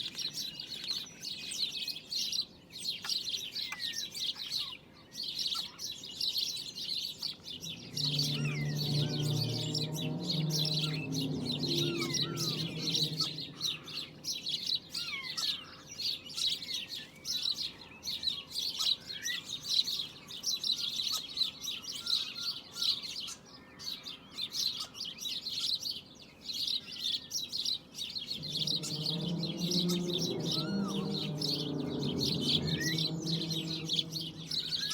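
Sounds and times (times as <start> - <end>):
small birds chirping: 0.0 - 34.9
low droning tones: 7.4 - 14.5, 28.3 - 34.9.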